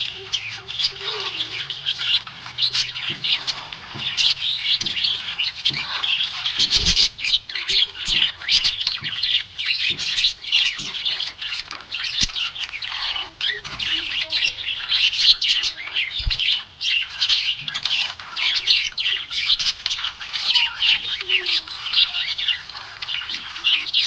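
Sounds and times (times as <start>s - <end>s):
budgerigars chirping: 0.0s - 24.0s.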